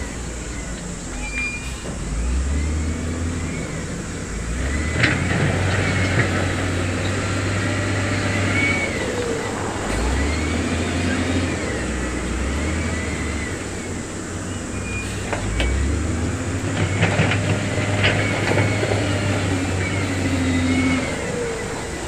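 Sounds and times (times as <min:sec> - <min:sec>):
diesel machinery engine drone: 0:00.0 - 0:22.0.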